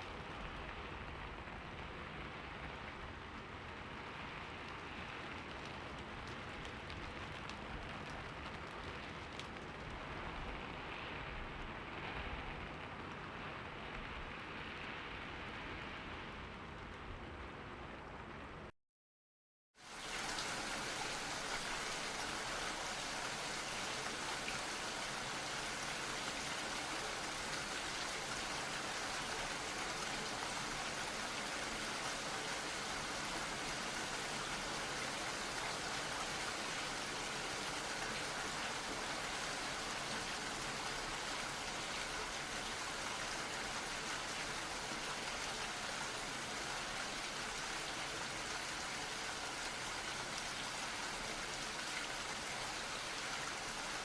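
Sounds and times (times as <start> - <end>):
steady rainfall: 0.0 - 18.7, 19.8 - 54.0.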